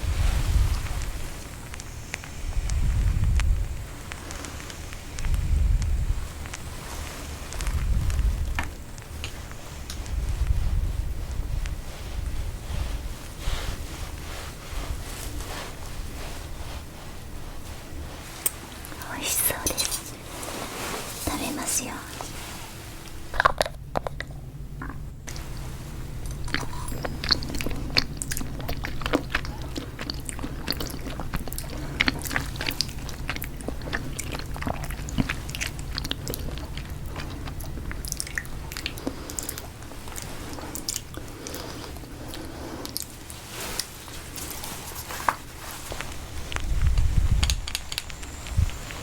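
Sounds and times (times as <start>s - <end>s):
low rumble: 0.0s - 18.2s
low steady hum: 0.0s - 49.0s
person chewing crunchy food: 26.2s - 48.9s.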